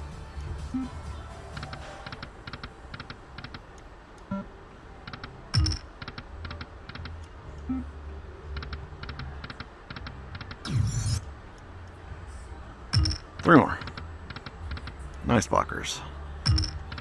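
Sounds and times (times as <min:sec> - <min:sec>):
slot machine clicking ticks: 0:05.6 - 0:05.9, 0:13.0 - 0:13.2, 0:16.5 - 0:17.0.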